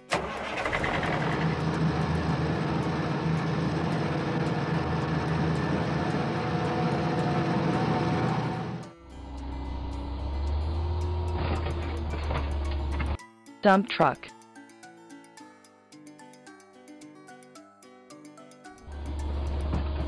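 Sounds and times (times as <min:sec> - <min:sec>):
truck engine hum: 0:00.1 - 0:13.2, 0:18.8 - 0:20.0
rumbling road noise: 0:09.5 - 0:13.2.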